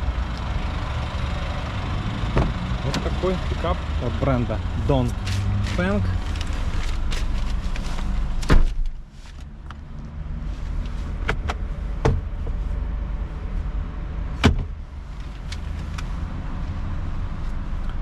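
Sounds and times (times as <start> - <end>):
steady low rumble: 0.0 - 18.0
vehicle door shutting: 2.3 - 3.1, 8.4 - 9.0.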